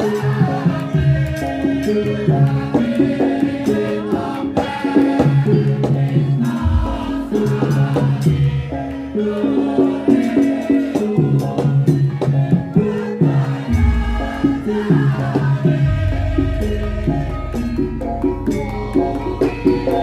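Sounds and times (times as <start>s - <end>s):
gamelan ensemble playing: 0.0s - 20.0s
deep low gong stroke: 15.8s - 19.4s.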